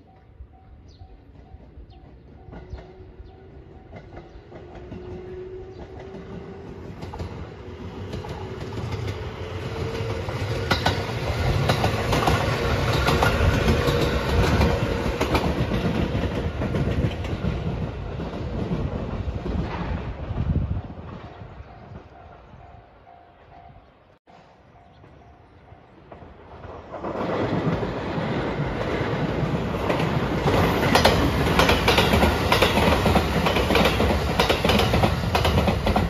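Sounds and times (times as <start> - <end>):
train wheels clacking over rail joints: 1.4 - 20.2, 26.1 - 36.0.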